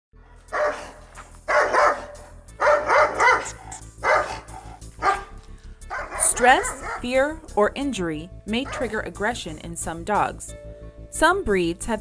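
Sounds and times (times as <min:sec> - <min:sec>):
dog barking: 0:00.5 - 0:07.1, 0:08.6 - 0:08.9.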